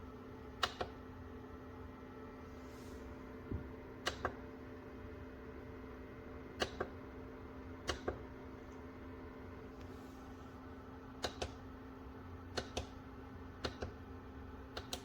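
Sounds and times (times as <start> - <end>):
dehumidifier fan humming: 0.0 - 15.0
sharp clicks: 14.8 - 15.0.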